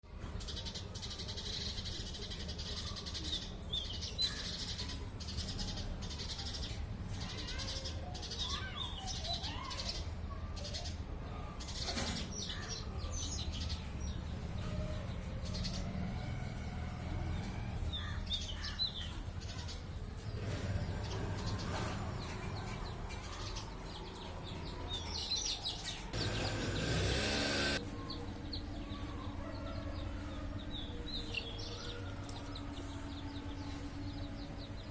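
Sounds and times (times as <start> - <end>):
small birds chirping: 0.4 - 16.6, 17.3 - 34.9
loud burst of noise: 26.2 - 27.8.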